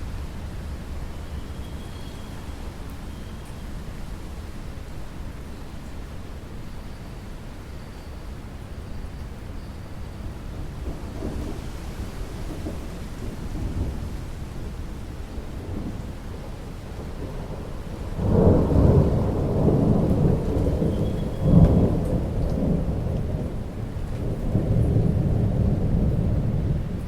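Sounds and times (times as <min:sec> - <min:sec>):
steady rain: 0:00.0 - 0:27.0
thunder rumbling: 0:10.5 - 0:27.0.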